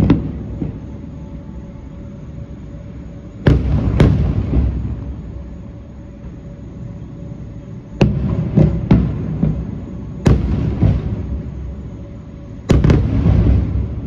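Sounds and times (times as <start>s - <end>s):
fireworks bangs: 0.0s - 0.8s, 3.4s - 5.4s, 8.0s - 11.8s, 12.7s - 14.0s.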